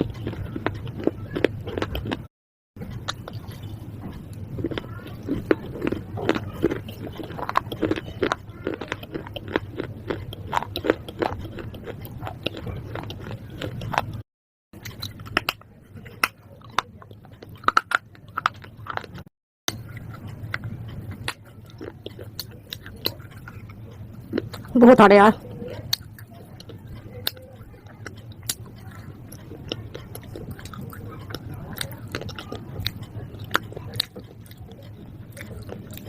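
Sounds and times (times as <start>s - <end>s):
person chewing crunchy food: 0.0s - 14.2s, 14.8s - 36.0s.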